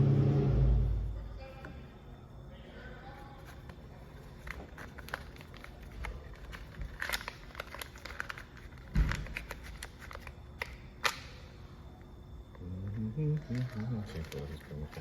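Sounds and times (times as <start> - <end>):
crinkly rustling: 3.1 - 10.9, 13.3 - 15.0.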